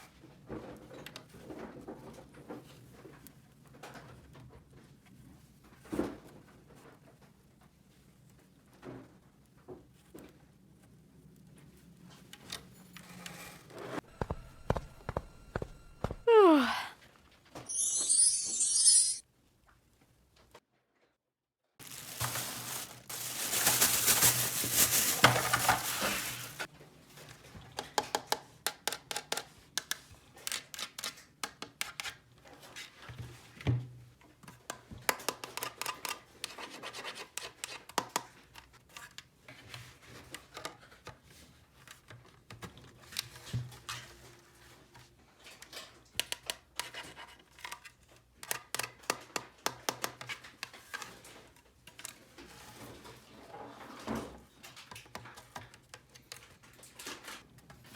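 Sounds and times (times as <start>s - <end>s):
plastic packaging rustling: 21.8s - 26.7s.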